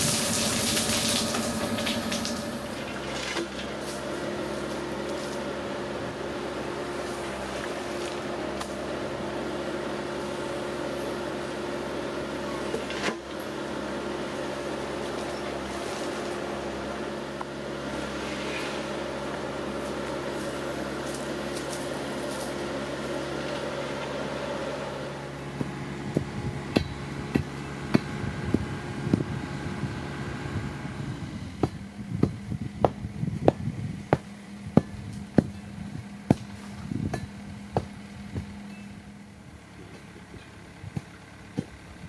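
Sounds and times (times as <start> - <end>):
sharp knocks and clanks: 25.6 - 29.2.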